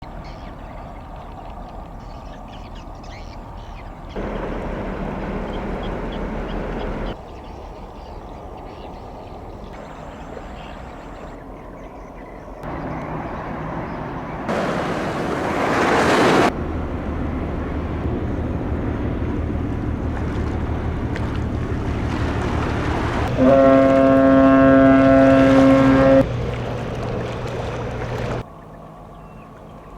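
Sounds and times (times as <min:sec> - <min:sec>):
ship engines rumbling: 0:03.4 - 0:07.3, 0:12.6 - 0:29.9
water rushing: 0:04.2 - 0:07.2, 0:12.6 - 0:28.5
ship's horn blast: 0:21.9 - 0:28.4.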